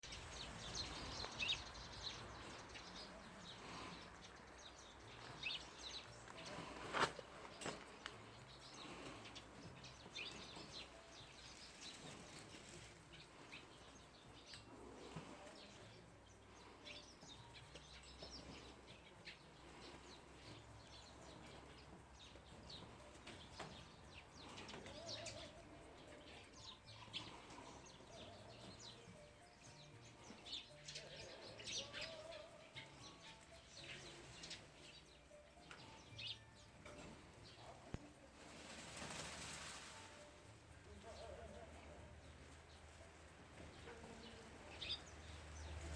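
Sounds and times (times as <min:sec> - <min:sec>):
faint bird chirps: 0:07.5 - 0:42.5.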